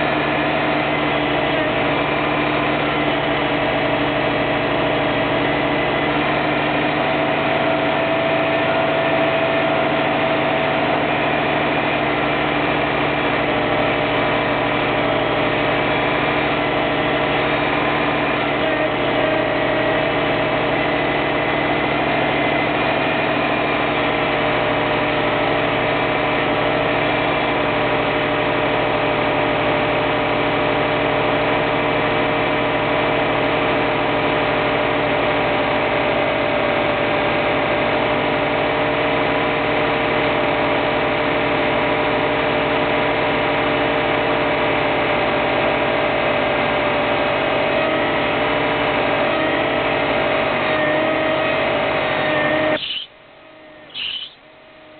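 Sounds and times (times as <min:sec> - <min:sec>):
constant whining tone: 0:51.5 - 0:54.9.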